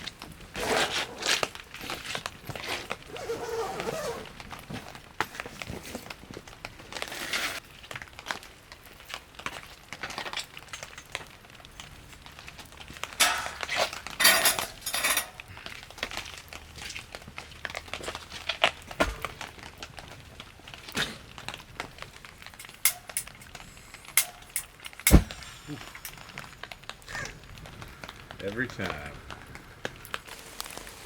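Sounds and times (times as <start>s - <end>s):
rustling: 0.0s - 7.6s, 11.8s - 31.0s
small hard objects clinking: 9.0s - 27.0s.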